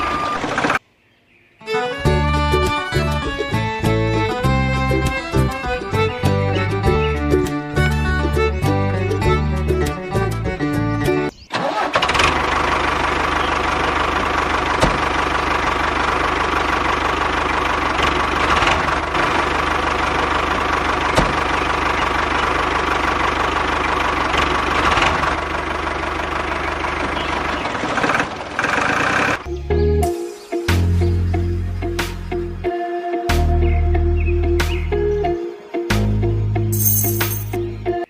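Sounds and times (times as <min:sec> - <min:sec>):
tractor engine running: 0:00.0 - 0:00.8, 0:01.8 - 0:29.5.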